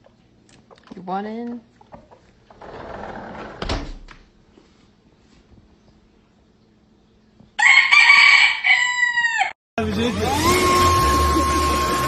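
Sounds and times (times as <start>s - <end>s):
rooster crowing: 7.6s - 9.6s.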